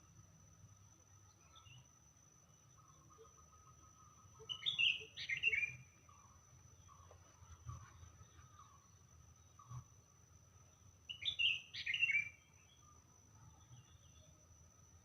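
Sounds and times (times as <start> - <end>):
bird chirping: 2.5 - 9.8, 10.6 - 14.4.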